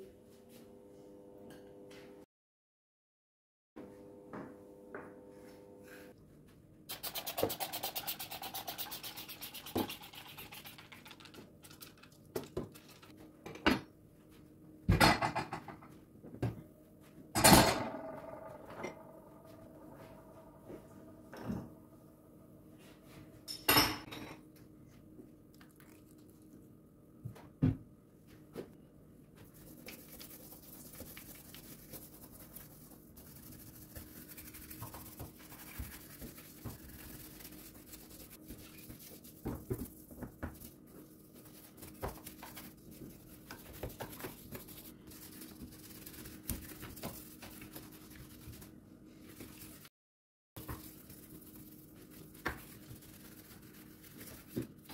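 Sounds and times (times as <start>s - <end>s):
dishes and utensils clinking: 23.4s - 24.5s.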